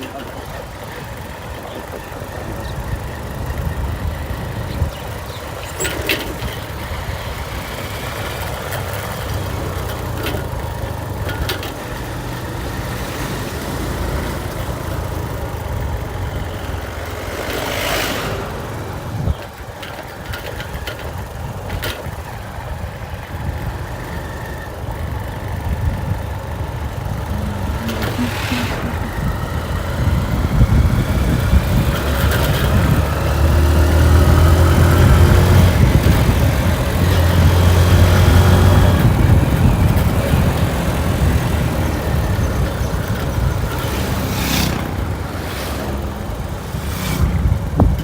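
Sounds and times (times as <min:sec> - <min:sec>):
motorcycle engine rumbling: 0:00.0 - 0:48.0
brief rush of noise: 0:27.4 - 0:29.6.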